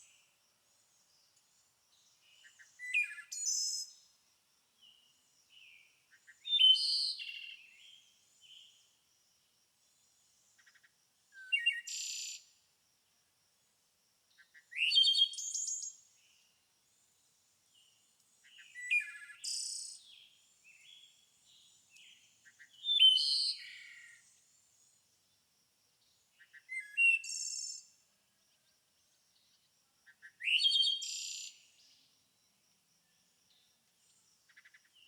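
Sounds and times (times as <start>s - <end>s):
songbird singing buzzy trill: 17.7s - 24.4s.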